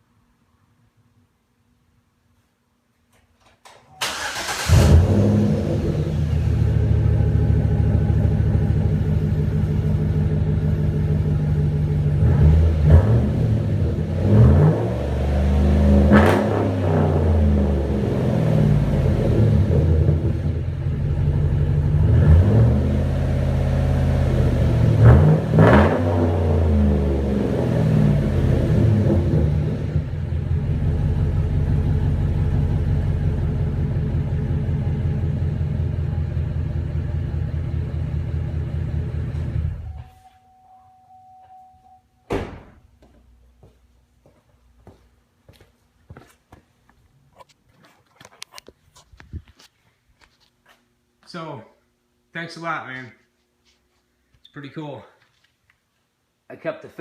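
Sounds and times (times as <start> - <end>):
truck engine idling and revving: 4.2 - 40.0.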